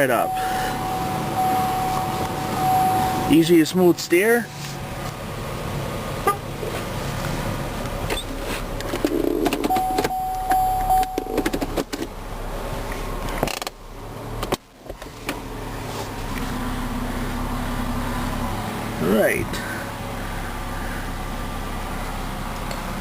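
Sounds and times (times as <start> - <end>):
steady tone: 0.0 - 5.0, 9.7 - 11.8
car engine idling: 0.0 - 23.0
clicks and rustling: 8.1 - 12.1.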